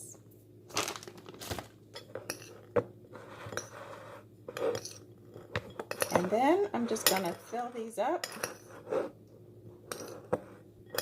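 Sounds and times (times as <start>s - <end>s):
spoon scraping mixing bowl: 2.1s - 9.2s.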